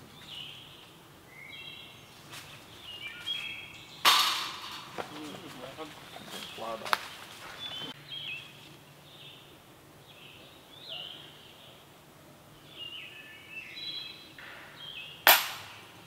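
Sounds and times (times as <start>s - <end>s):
songbirds chirping: 0.0s - 16.0s
loud sharp crack: 4.0s - 5.2s, 14.4s - 16.0s.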